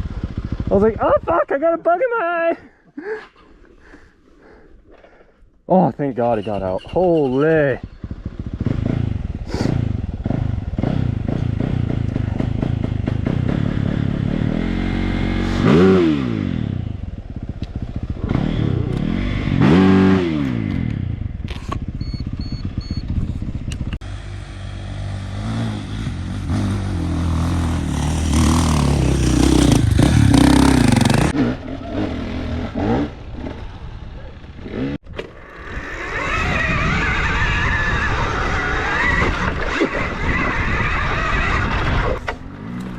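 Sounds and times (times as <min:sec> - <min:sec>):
dirt bike engine revving: 0:07.0 - 0:23.0, 0:24.0 - 0:42.9.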